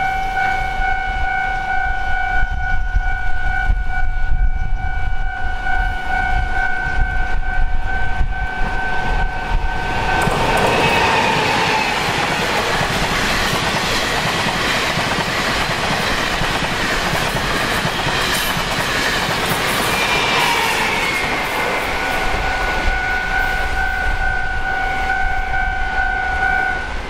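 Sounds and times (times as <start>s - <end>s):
two-pitched warning tone: 0.0s - 10.4s, 19.9s - 27.0s
train wheels clattering on rails: 9.7s - 23.8s.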